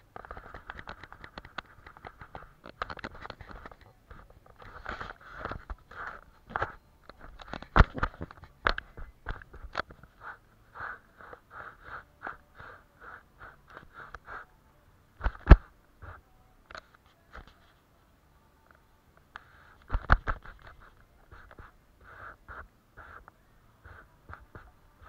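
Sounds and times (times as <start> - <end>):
paintbrush strokes on paper: 3.4 - 6.9, 9.0 - 16.3, 19.4 - 25.0.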